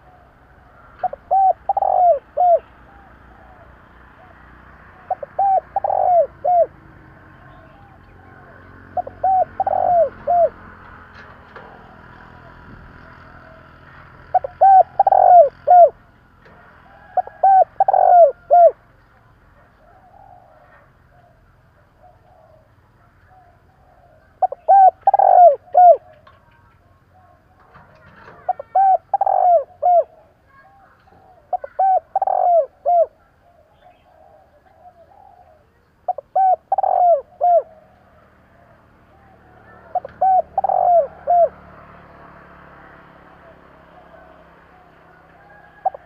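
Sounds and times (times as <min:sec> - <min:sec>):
dove cooing: 0:00.0 - 0:18.8, 0:19.6 - 0:46.0.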